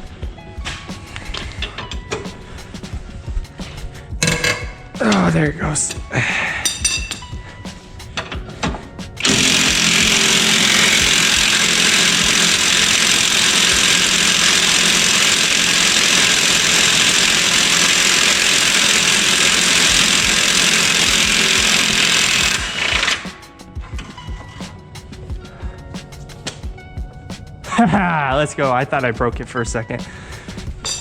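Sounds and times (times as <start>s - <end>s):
impact wrench hammering: 4.2s - 5.2s, 8.2s - 23.4s.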